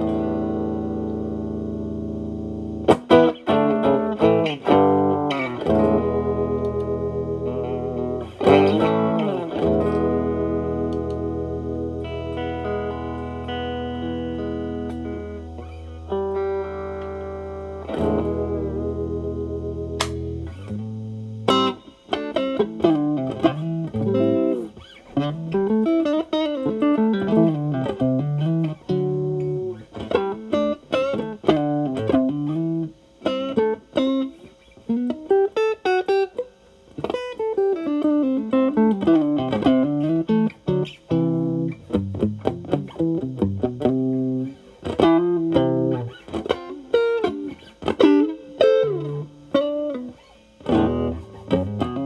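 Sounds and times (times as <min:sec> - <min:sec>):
overdriven electric guitar: 0:00.0 - 0:52.0.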